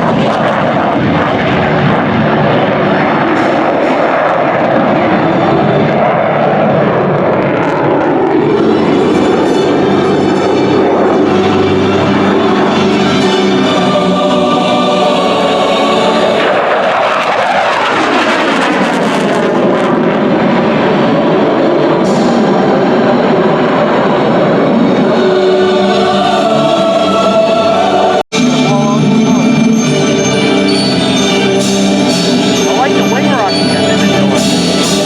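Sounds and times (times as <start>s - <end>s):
jet engine roar: 0.0s - 35.0s
background music: 8.4s - 17.3s, 22.0s - 35.0s.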